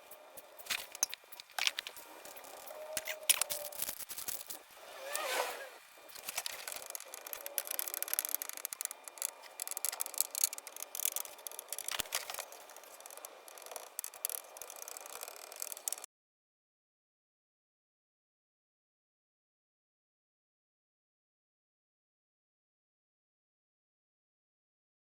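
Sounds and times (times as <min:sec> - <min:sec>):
hand scraping and rubbing a surface: 0:00.0 - 0:16.0
small clicks: 0:00.1 - 0:04.6, 0:06.0 - 0:16.1.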